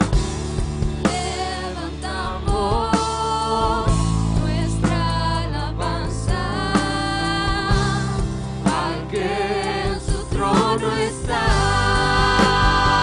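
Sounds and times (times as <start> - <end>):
band with drums and bass: 0.0 - 13.0
voices singing held notes: 4.6 - 13.0.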